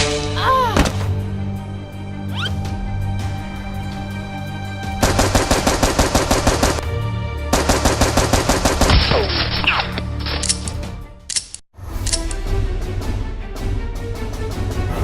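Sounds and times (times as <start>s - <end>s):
background music: 0.0s - 15.0s
automatic gunfire: 5.0s - 6.8s, 7.6s - 9.1s.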